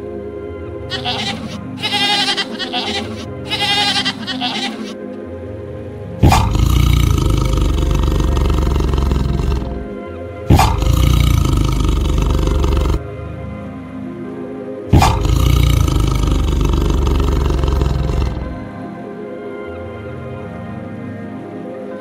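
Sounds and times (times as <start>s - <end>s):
background music: 0.0s - 22.0s
animal bleating: 0.9s - 5.0s, 6.2s - 9.9s, 10.5s - 13.0s, 14.9s - 18.6s
lion roaring: 6.2s - 9.9s, 10.5s - 13.0s, 14.9s - 18.7s.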